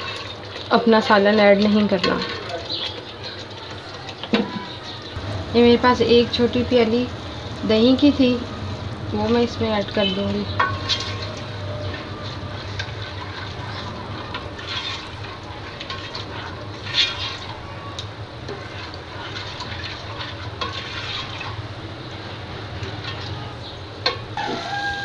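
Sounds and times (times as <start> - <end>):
masala sizzling in a pot: 0.0 - 25.0
ladle scraping and knocking: 10.2 - 17.7, 18.4 - 21.7.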